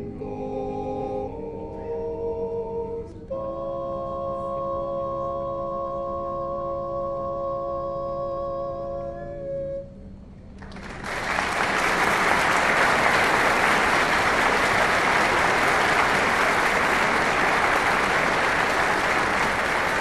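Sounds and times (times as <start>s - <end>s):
vocal quartet holding a chord: 0.0s - 9.7s, 12.6s - 20.0s
audience applause: 10.6s - 20.0s.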